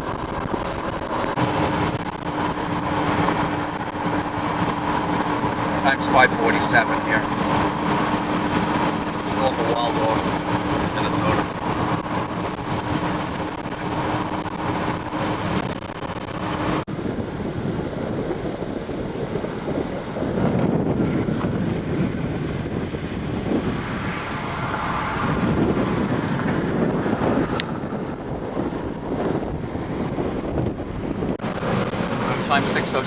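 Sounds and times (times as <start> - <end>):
wind gusting across microphone: 0.0 - 33.0
steady low hum: 0.9 - 20.2.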